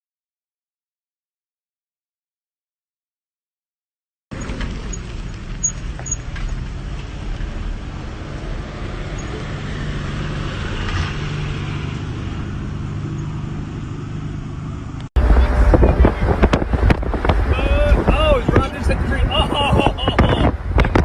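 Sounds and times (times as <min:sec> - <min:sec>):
engine running with low rumble: 0:04.3 - 0:21.0.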